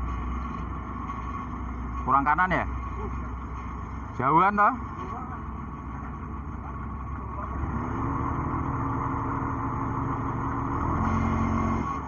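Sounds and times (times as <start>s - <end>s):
heavy diesel engine revving: 3.4s - 12.0s.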